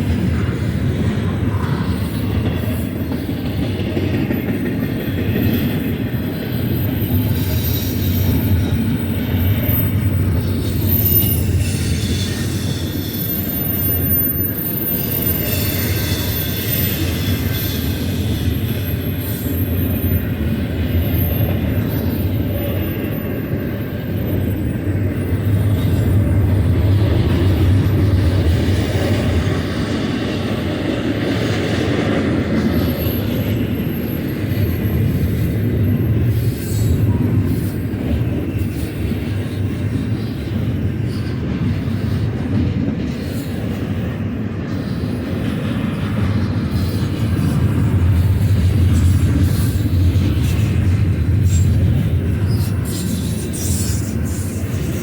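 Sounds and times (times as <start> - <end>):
train wheels rumbling on rail: 0.0 - 55.0
high-pitched wheel squeals: 5.4 - 26.2.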